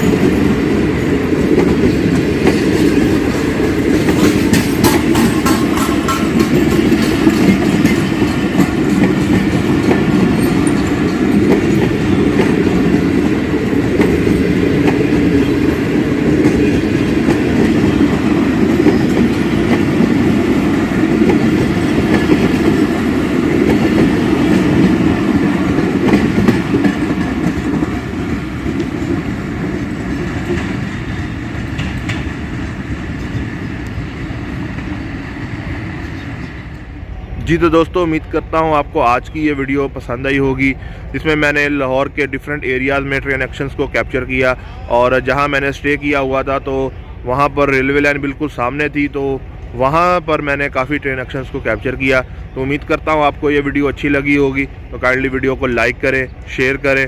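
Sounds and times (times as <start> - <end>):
wheels clattering over track: 0.0 - 35.1
train rumbling past: 0.0 - 57.0.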